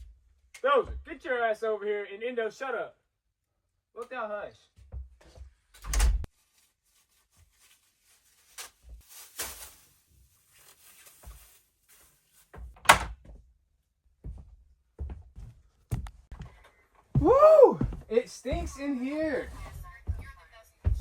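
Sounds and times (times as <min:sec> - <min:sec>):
rustling: 0:06.3 - 0:12.8
door banging: 0:12.8 - 0:13.2.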